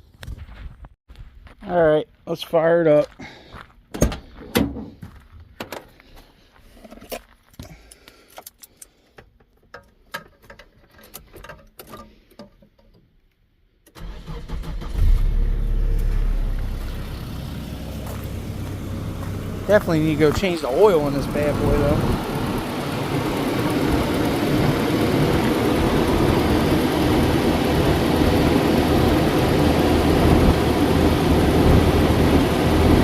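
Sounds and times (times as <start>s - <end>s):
car engine cranking and idling: 6.8s - 33.0s.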